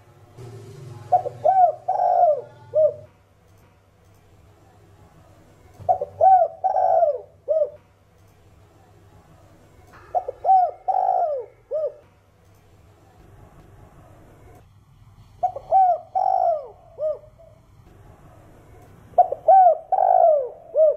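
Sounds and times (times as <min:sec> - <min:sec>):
dove cooing: 0:00.9 - 0:03.1, 0:05.8 - 0:07.8, 0:10.1 - 0:12.1, 0:15.4 - 0:17.6, 0:19.2 - 0:20.9.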